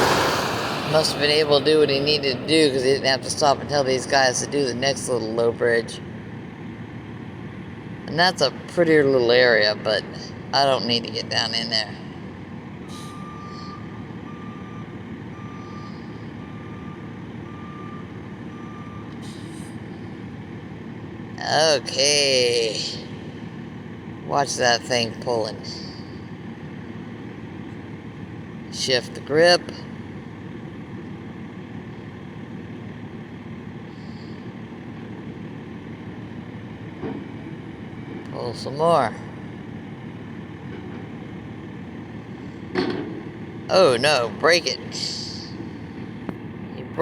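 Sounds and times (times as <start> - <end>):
diesel engine rumble: 0.0 - 47.0
truck backup alarm beeping: 12.7 - 21.0, 33.4 - 35.4.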